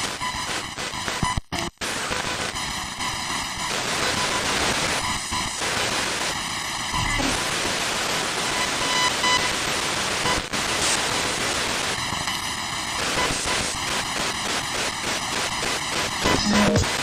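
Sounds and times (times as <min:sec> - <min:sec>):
radio static hiss: 0:00.0 - 0:17.0
buzzy tone: 0:16.2 - 0:17.0.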